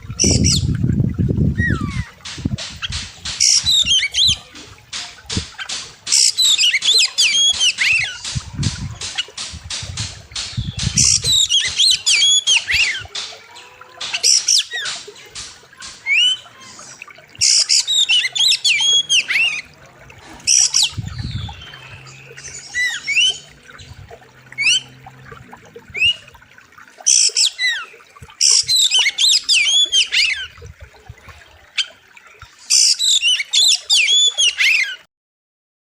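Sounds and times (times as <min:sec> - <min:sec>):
bird song whistles and chatter: 0:00.2 - 0:00.8, 0:01.6 - 0:02.2, 0:02.8 - 0:04.6, 0:05.5 - 0:09.5, 0:10.3 - 0:19.8, 0:20.5 - 0:24.0, 0:27.1 - 0:30.6, 0:32.6 - 0:35.0.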